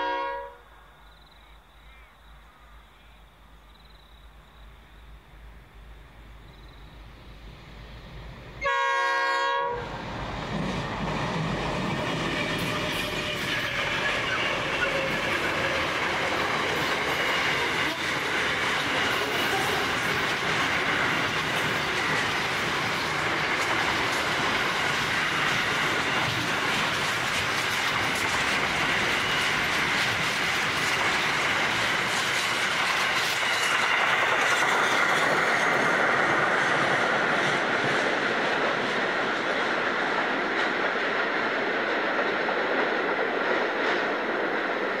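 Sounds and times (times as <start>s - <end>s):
freight train rolling rumble: 4.9s - 45.0s
wheels clacking over rail joints: 10.0s - 45.0s.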